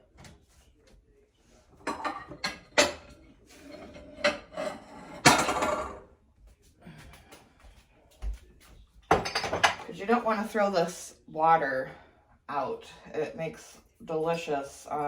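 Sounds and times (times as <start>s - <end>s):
dishes clattering: 1.8s - 6.1s, 9.1s - 10.0s.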